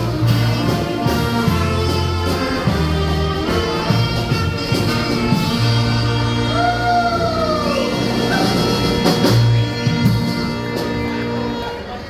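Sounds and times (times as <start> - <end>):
brass band playing: 0.0 - 12.0
drums: 0.0 - 12.0
voice sliding down in pitch: 6.4 - 9.2.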